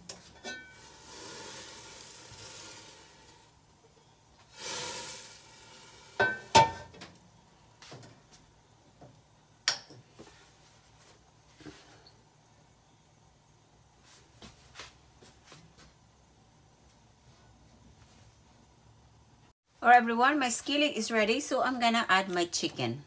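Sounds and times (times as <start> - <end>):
oil sizzling in a skillet: 0.5 - 3.6, 4.4 - 6.9.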